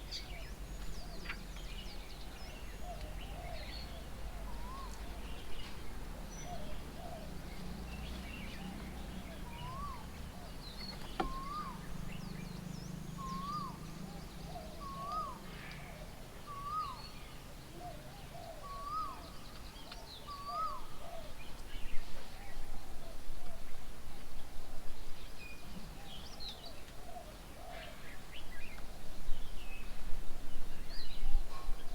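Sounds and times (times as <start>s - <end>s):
faint high bird chirps: 10.7s - 12.4s
bird repeating rising call: 11.2s - 11.9s.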